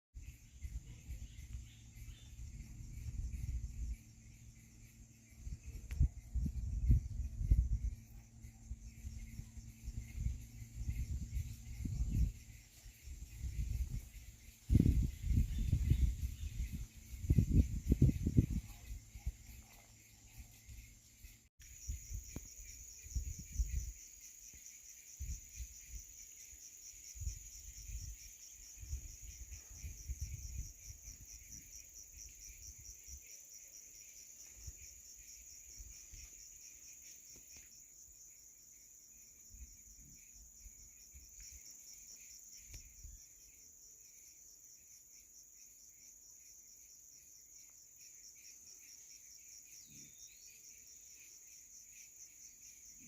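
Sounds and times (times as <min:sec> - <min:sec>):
insects chirring: 0:00.2 - 0:53.0
low rumbling thumps: 0:02.2 - 0:08.0.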